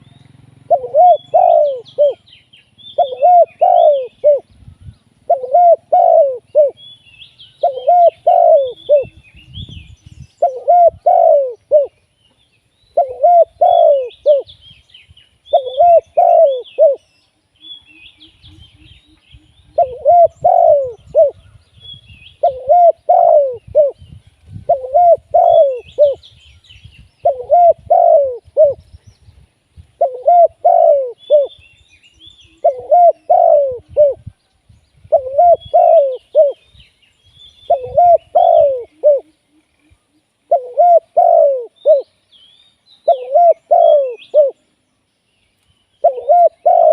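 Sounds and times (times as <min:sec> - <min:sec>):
dove cooing: 0:00.0 - 0:04.5, 0:05.2 - 0:06.8, 0:07.6 - 0:09.2, 0:10.4 - 0:12.0, 0:12.9 - 0:14.5, 0:15.5 - 0:17.1, 0:18.2 - 0:21.5, 0:22.4 - 0:24.0, 0:24.6 - 0:26.3, 0:27.2 - 0:28.9, 0:30.0 - 0:31.6, 0:32.2 - 0:34.4, 0:35.1 - 0:36.7, 0:37.6 - 0:42.1, 0:43.0 - 0:44.6, 0:46.0 - 0:46.9.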